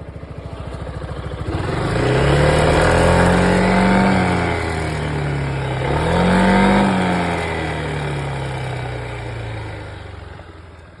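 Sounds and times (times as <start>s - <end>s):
scooter engine revving: 0.0s - 10.8s.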